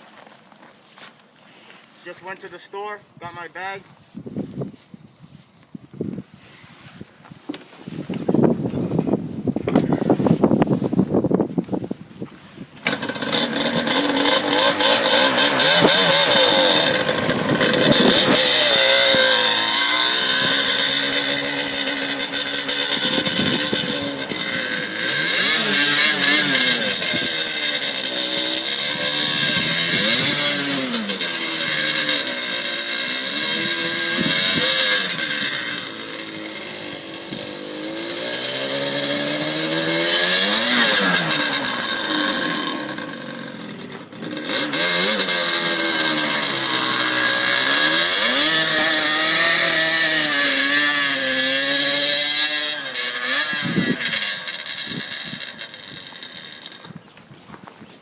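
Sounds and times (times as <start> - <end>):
atv engine revving: 12.8 - 57.0.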